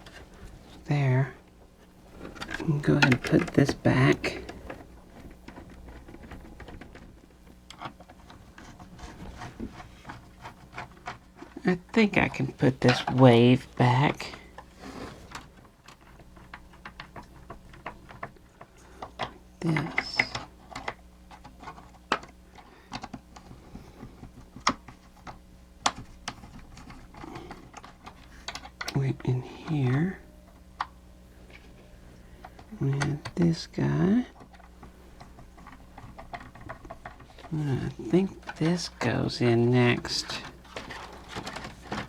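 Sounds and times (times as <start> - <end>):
clicks of plastic parts handled: 15.3 - 29.3, 34.3 - 42.0.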